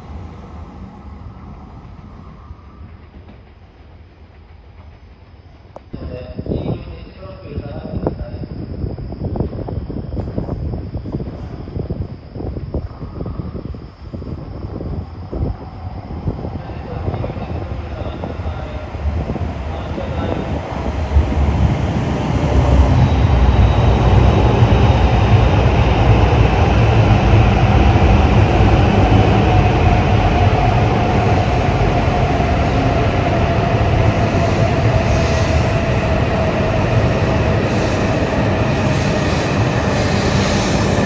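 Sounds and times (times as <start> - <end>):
train rumble: 0.0 - 41.0
train whining tone: 0.0 - 41.0.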